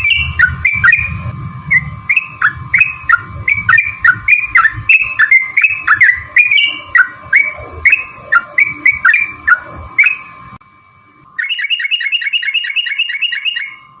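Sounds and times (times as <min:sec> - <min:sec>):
bird bubbly chirping song: 0:00.0 - 0:10.3
steady thin whine: 0:00.0 - 0:14.0.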